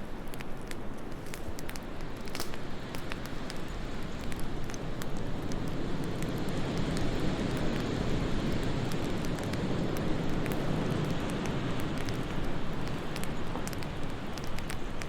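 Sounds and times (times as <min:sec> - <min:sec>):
low rumble of wind: 0:00.0 - 0:15.0
wood fire crackling: 0:00.0 - 0:15.0.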